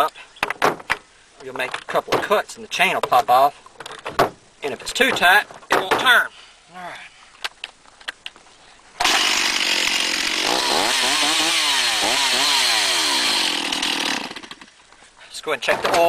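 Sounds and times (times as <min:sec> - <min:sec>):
chainsaw revving: 0:09.0 - 0:14.7.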